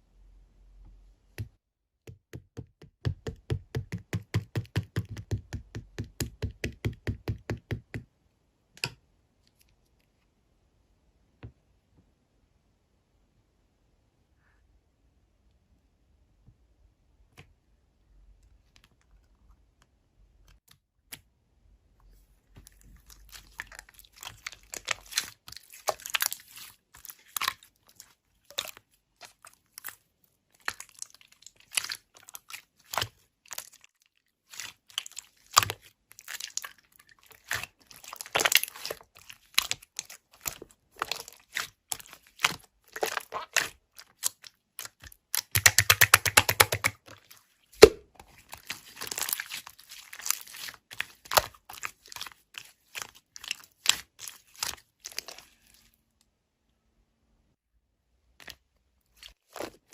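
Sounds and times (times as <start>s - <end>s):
crinkling and crunching: 22.5s - 56.2s, 58.4s - 59.9s.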